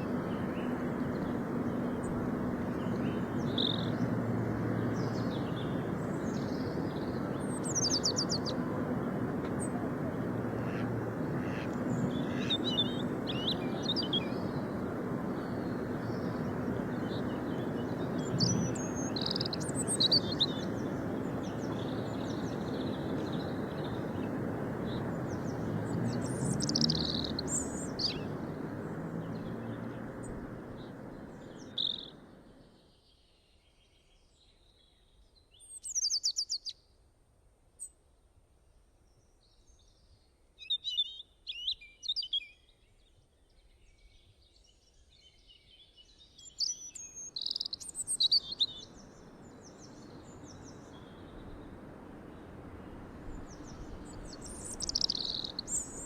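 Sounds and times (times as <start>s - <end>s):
birds chirping: 0.0s - 33.0s, 46.4s - 56.0s.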